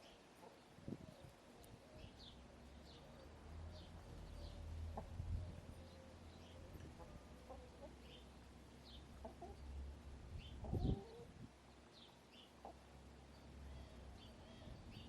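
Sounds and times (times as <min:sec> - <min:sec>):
small birds chirping: 0:00.0 - 0:15.0
hens clucking: 0:09.2 - 0:09.7, 0:10.6 - 0:11.4.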